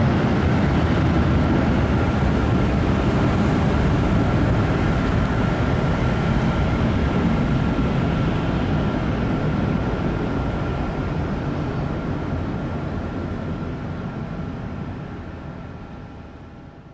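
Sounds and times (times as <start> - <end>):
jet engines roaring with whine: 0.0 - 16.9.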